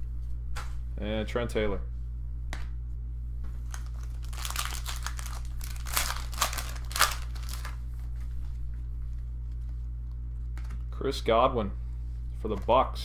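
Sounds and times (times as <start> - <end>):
packaging crinkling: 3.6 - 8.1
cards rustling: 3.6 - 8.2.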